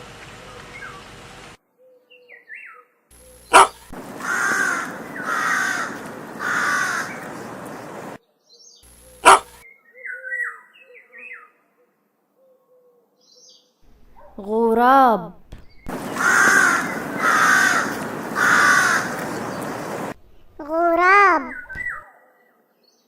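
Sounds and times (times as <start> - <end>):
small birds chirping: 0.0 - 1.6, 3.2 - 10.6, 15.6 - 22.0
crow cawing: 3.5 - 8.2, 9.2 - 9.4, 15.9 - 20.1.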